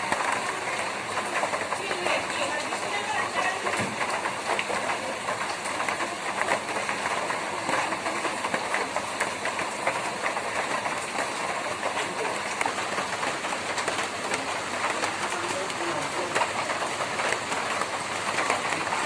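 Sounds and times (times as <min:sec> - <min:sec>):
rain on a tin roof: 0:00.0 - 0:19.0.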